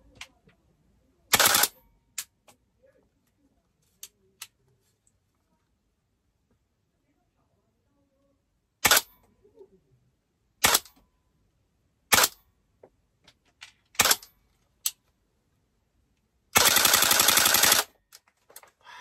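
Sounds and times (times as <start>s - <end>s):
full-auto burst of rapid shots: 1.3s - 1.8s, 16.6s - 18.0s
airsoft rifle shots: 16.6s - 17.9s.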